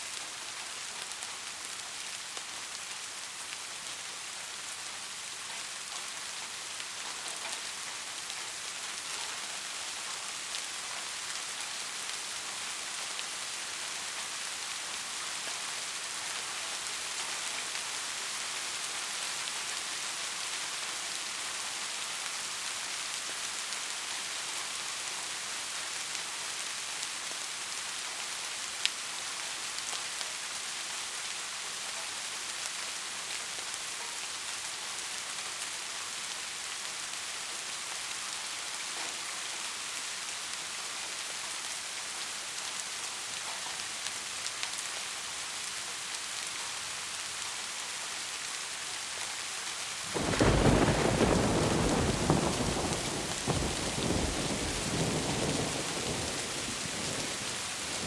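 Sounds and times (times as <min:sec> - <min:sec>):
heavy rain hissing: 0:32.4 - 0:58.0
loud thunderclap: 0:50.1 - 0:57.4.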